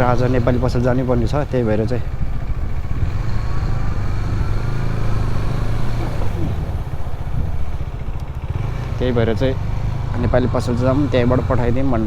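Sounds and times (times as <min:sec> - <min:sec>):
wind on microphone: 0:00.0 - 0:08.5
motorcycle engine rumble: 0:00.0 - 0:12.0.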